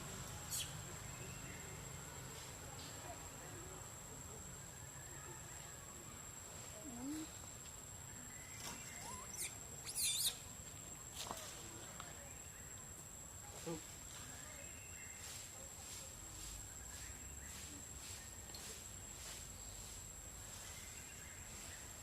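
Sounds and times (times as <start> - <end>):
monkeys squeaking and chirping: 0.5 - 0.8, 8.9 - 10.4.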